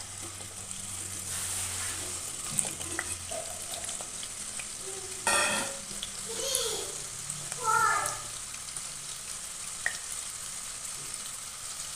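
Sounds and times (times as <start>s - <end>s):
potatoes sizzling in hot oil: 0.0s - 11.9s.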